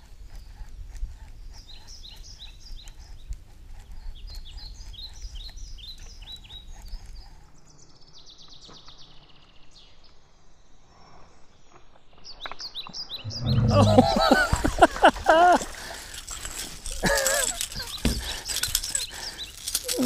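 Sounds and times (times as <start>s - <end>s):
songbirds chirping: 0.0s - 20.0s
low rumble: 13.2s - 14.7s
buzzy bird trill: 13.2s - 20.0s.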